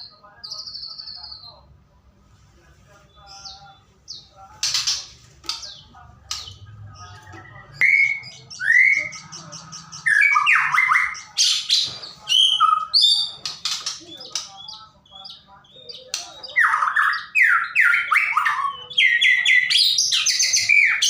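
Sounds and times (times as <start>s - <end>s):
bird singing whistles and calls: 7.7s - 21.0s.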